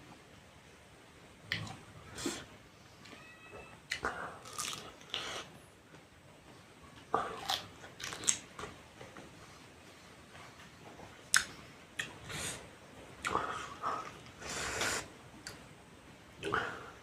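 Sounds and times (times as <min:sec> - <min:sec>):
crunchy biting and chewing: 0:04.4 - 0:05.5, 0:07.2 - 0:08.4.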